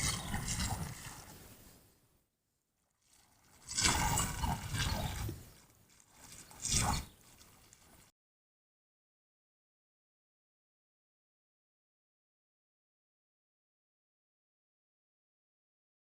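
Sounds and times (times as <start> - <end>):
water splashing and sloshing: 0.0 - 1.8, 3.0 - 8.1.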